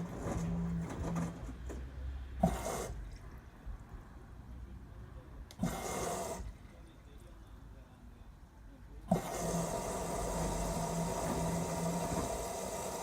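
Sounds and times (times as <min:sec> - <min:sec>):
washing machine low hum: 0:00.0 - 0:08.4, 0:09.1 - 0:13.0
water and laundry sloshing: 0:02.4 - 0:04.2.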